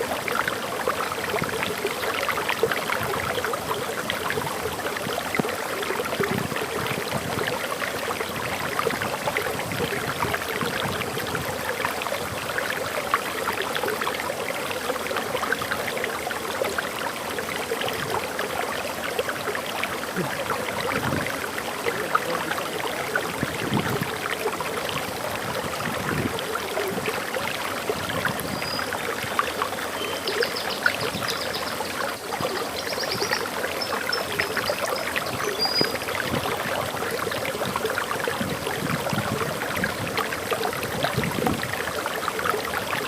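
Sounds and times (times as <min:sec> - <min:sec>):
waterfall splashing: 0:16.4 - 0:30.7.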